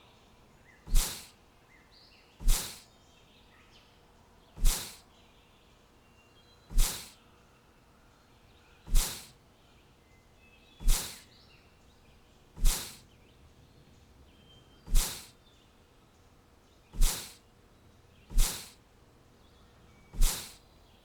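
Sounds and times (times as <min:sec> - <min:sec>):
faint high bird chirps: 0:00.0 - 0:18.8, 0:19.4 - 0:21.0
sharp swish: 0:00.9 - 0:01.3, 0:02.4 - 0:02.8, 0:04.6 - 0:05.0, 0:06.7 - 0:07.2, 0:08.9 - 0:09.3, 0:10.8 - 0:11.3, 0:12.6 - 0:13.0, 0:14.9 - 0:15.3, 0:17.0 - 0:17.4, 0:18.3 - 0:18.8, 0:20.2 - 0:20.6.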